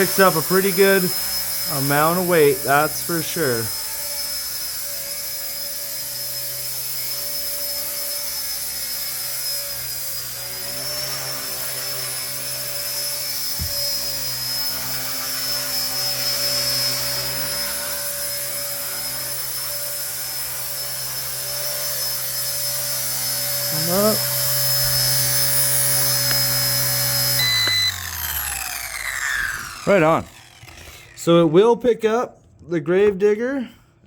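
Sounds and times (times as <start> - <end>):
electric motor whine: 0.0 - 31.4
rotor hum: 23.6 - 31.5.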